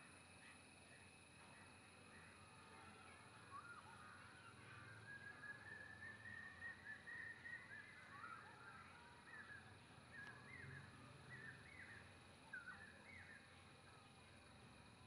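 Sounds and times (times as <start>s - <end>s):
faint whistled bird calls: 0.0s - 15.0s
low background hum: 0.0s - 15.0s.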